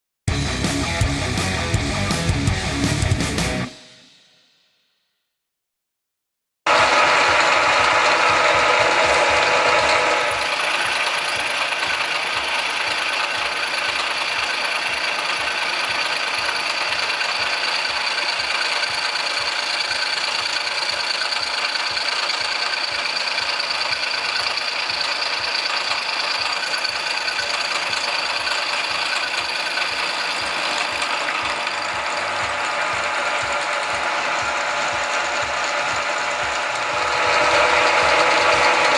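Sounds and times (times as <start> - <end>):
cutter chipping metal: 6.7 - 38.9
milling machine whirring: 6.7 - 38.9.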